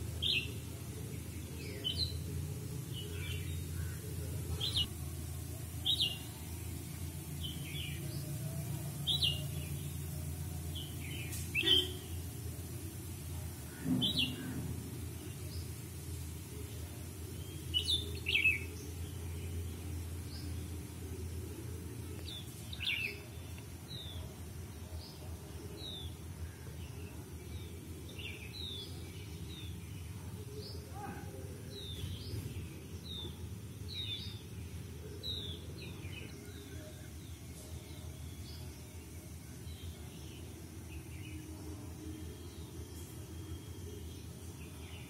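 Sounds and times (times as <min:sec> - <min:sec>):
birds chirping: 0:00.2 - 0:12.4.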